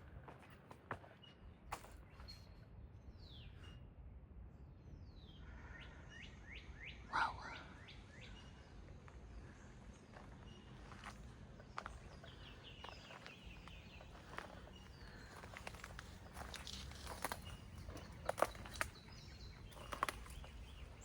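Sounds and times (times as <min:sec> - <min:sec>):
wild birds chirping: 0:04.9 - 0:21.0.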